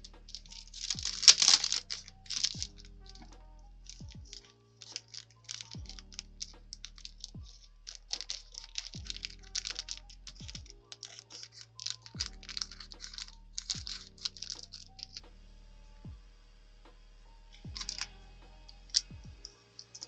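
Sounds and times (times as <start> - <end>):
paper crackling and clicking: 0.0 - 15.2, 17.8 - 18.1, 19.8 - 20.0
background music: 0.0 - 20.0.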